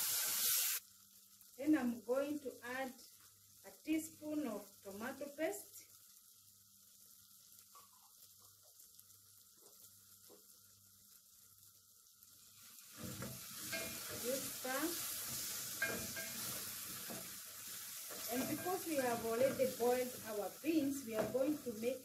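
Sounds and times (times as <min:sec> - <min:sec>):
sauce sizzling in a pot: 0:00.0 - 0:22.0
wooden spoon scraping a pot: 0:12.9 - 0:20.2.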